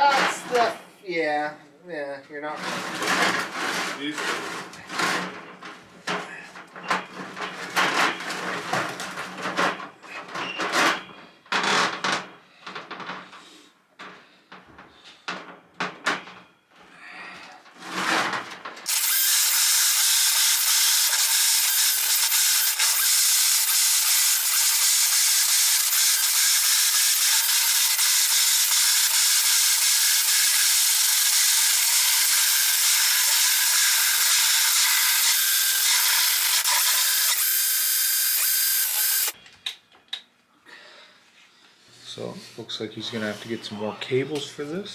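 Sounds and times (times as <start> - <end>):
scraping and handling noises: 2.5 - 18.9
drain cleaning machine whining: 18.9 - 39.4.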